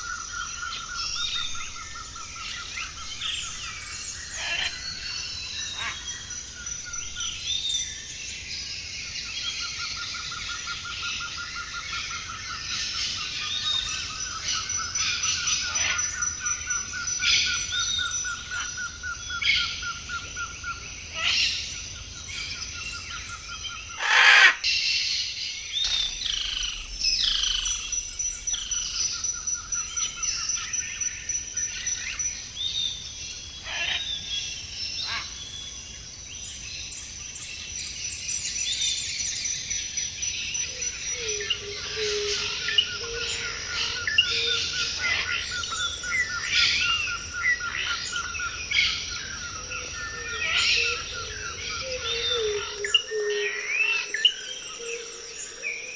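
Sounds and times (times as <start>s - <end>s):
birds chirping: 0.0s - 55.9s
bird trilling: 25.8s - 30.6s.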